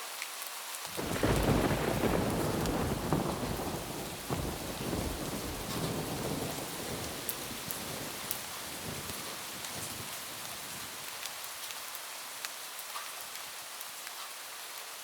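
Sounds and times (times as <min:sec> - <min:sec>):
steady rain: 0:00.0 - 0:15.0
rolling thunder: 0:01.0 - 0:11.1.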